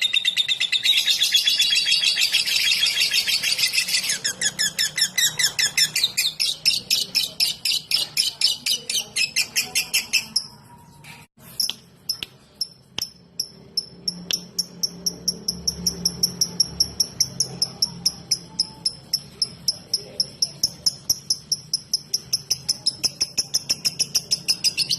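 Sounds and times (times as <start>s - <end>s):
lovebird ticking chirps: 11.6s - 24.9s.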